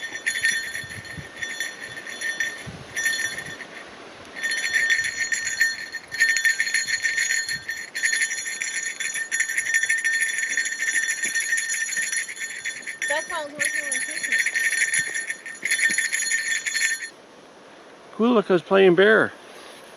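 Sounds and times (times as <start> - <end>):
bell jingling: 0.0 - 17.2.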